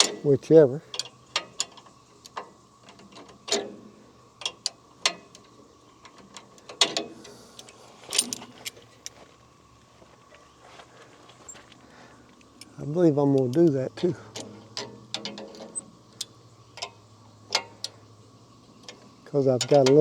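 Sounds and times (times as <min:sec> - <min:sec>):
wrench clicking on metal nuts: 0:06.3 - 0:08.8.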